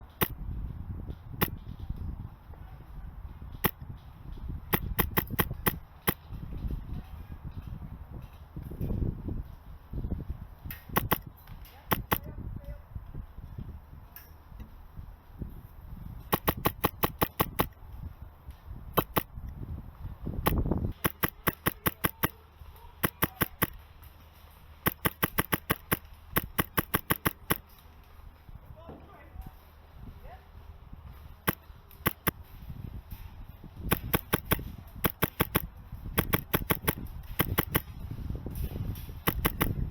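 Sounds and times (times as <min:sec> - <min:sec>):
airsoft gun shots: 0:04.7 - 0:06.2, 0:10.8 - 0:11.3, 0:11.9 - 0:12.3, 0:16.3 - 0:17.8, 0:19.0 - 0:19.3, 0:20.4 - 0:22.4, 0:23.0 - 0:23.8, 0:24.8 - 0:27.7, 0:31.5 - 0:32.4, 0:33.9 - 0:37.9, 0:39.2 - 0:39.8.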